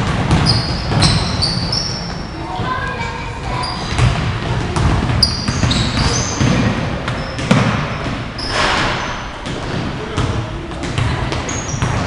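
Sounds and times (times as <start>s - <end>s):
basketball bouncing on court: 0.0s - 2.9s, 3.6s - 12.0s
sneakers squeaking: 0.0s - 12.0s
murmur of crowd chatter: 2.0s - 12.0s.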